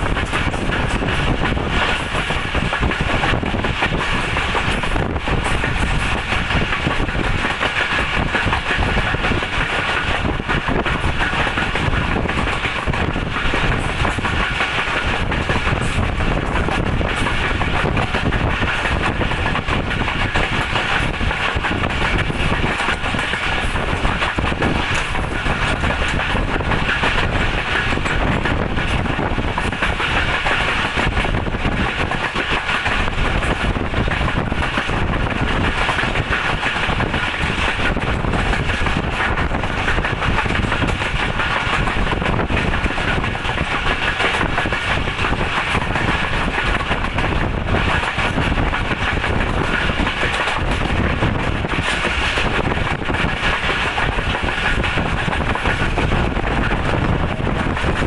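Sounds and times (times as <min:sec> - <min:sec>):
train wheels rumbling and rattling: 0:00.0 - 0:58.0.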